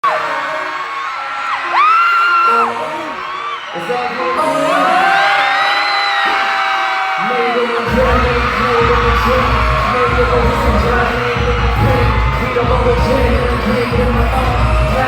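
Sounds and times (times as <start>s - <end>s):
crowd screaming and cheering: 0.0s - 15.0s
pulsing bass beat: 7.9s - 15.0s.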